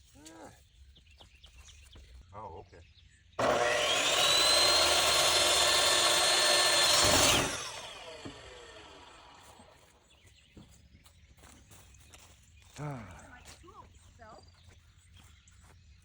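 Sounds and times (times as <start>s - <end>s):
saw cutting wood board: 3.4s - 9.7s
electric power saw whining: 3.4s - 9.8s.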